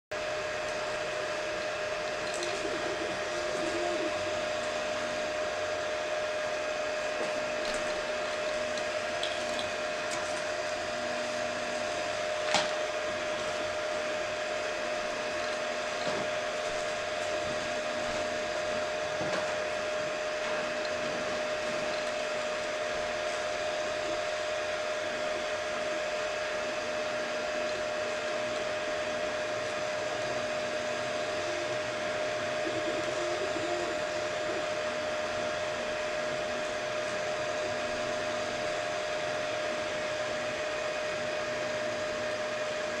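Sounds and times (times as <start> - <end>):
printer fan whine: 0.1 - 43.0
printer motor tones: 0.2 - 43.0.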